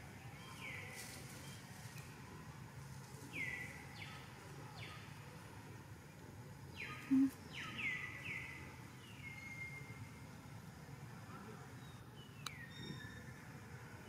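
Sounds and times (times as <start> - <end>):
outdoor background noise: 0.0 - 14.0
bird calls: 6.8 - 8.5.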